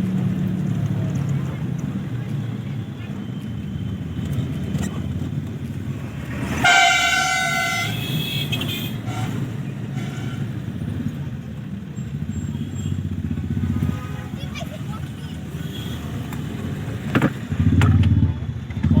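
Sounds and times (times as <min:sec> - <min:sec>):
car engine and road noise: 0:00.0 - 0:19.0
car horn blast: 0:06.4 - 0:10.6.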